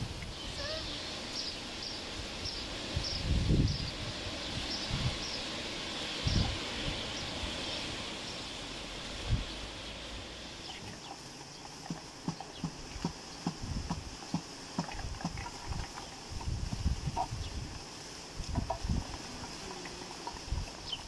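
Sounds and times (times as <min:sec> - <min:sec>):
bird chirping: 0:00.3 - 0:04.0, 0:10.6 - 0:16.3, 0:20.7 - 0:21.0.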